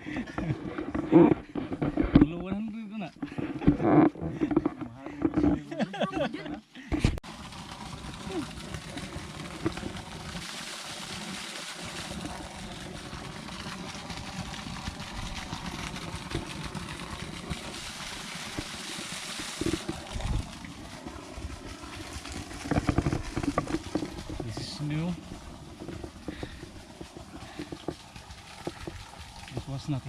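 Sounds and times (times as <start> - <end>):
low uneven rumble: 0.0 - 30.0
water trickling: 7.2 - 30.0.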